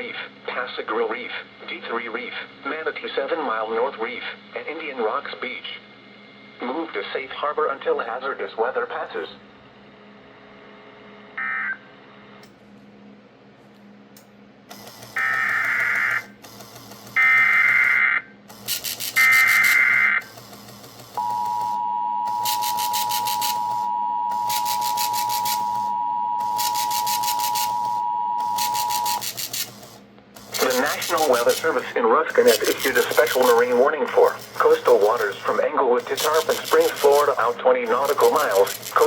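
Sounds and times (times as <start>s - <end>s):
warbling digital data bursts: 18.8s - 20.2s, 24.4s - 25.7s, 30.5s - 39.0s
two-tone attention signal: 21.2s - 29.3s.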